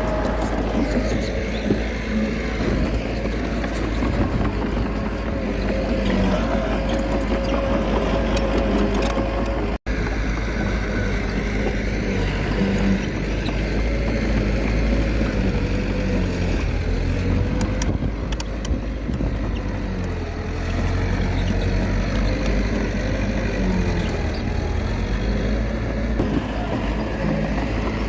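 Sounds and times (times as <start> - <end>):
bulldozer diesel engine running: 0.0 - 28.0.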